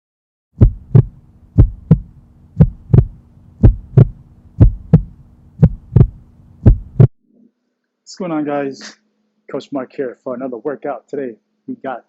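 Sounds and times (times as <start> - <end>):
heartbeat thumps: 0.6 - 7.2
faint low hum: 0.6 - 12.0.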